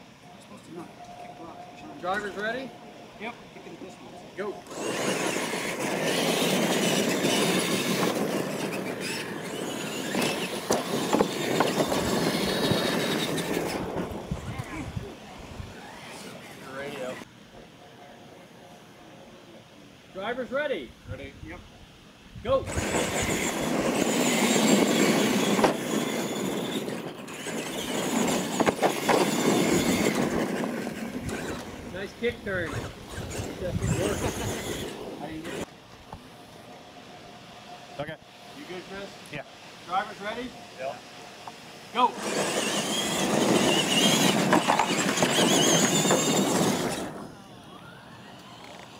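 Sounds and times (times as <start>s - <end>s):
toy truck motors whining: 3.6s - 17.3s, 22.6s - 35.7s, 41.5s - 48.9s
tyres scrabbling on gravel: 4.7s - 14.9s, 22.7s - 35.7s, 42.2s - 47.3s.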